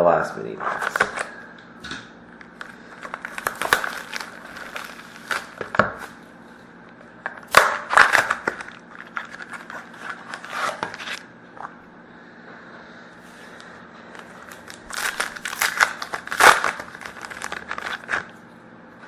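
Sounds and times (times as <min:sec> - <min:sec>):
wrapper and cardboard crinkling: 0:02.6 - 0:06.2, 0:07.5 - 0:11.2, 0:14.2 - 0:18.3.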